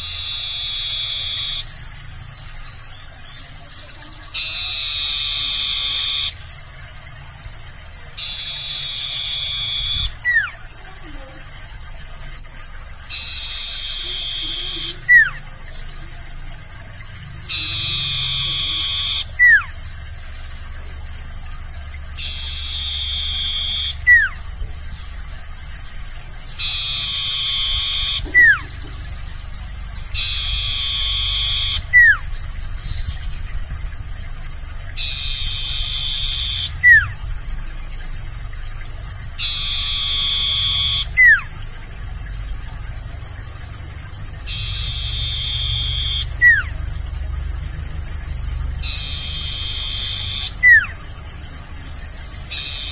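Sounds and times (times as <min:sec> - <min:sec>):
bird buzzy trill and whistle: 0:00.0 - 0:07.2, 0:08.0 - 0:11.2, 0:13.0 - 0:15.9, 0:17.0 - 0:19.8, 0:22.1 - 0:33.8, 0:34.9 - 0:38.0, 0:39.3 - 0:41.6, 0:44.4 - 0:47.2, 0:48.7 - 0:52.9
low hum: 0:00.0 - 0:52.9.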